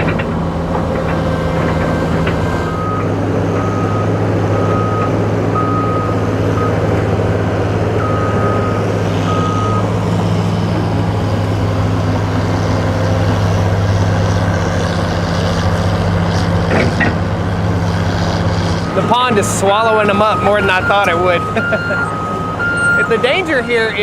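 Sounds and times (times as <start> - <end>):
heavy diesel machinery running: 0.0 - 24.0
reversing alarm beeping: 1.3 - 6.9, 8.0 - 10.0, 19.0 - 24.0.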